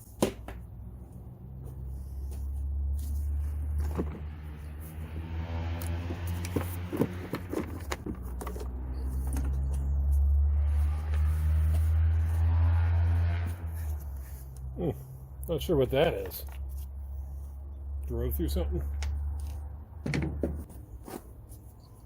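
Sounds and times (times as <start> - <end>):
clicks and knocks of parts handled: 5.8 - 10.2.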